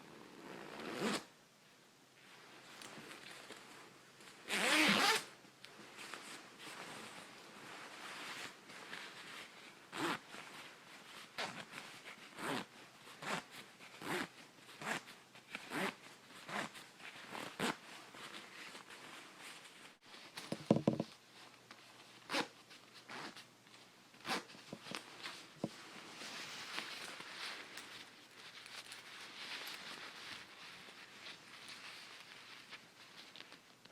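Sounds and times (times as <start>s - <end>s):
coat zipper zipping up and down: 0.0s - 1.3s, 4.4s - 5.3s, 7.8s - 9.0s, 9.9s - 18.9s, 22.3s - 23.4s, 24.2s - 24.6s.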